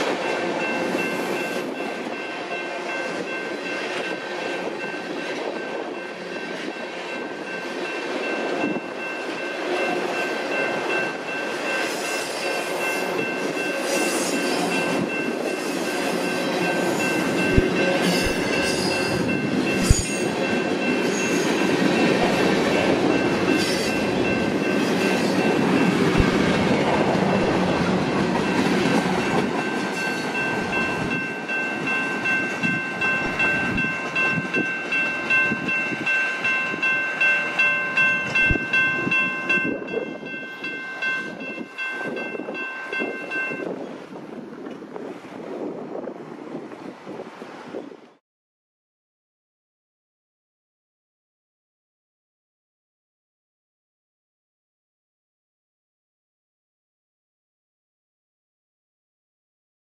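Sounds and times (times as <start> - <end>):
freight train wheels rumbling: 0.0 - 47.9
steady high tone: 4.8 - 43.7.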